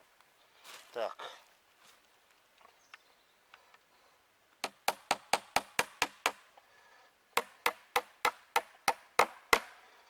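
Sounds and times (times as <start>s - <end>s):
hammering nails into wood: 4.6s - 6.4s, 7.4s - 9.8s.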